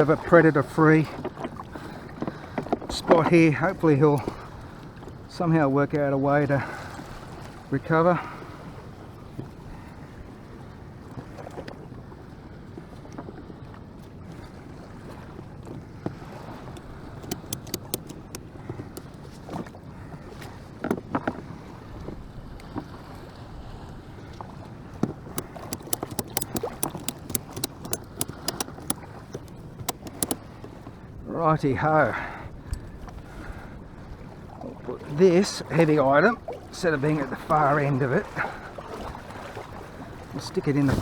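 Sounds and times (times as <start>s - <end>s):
gear being handled: 17.2s - 18.4s, 25.4s - 30.4s.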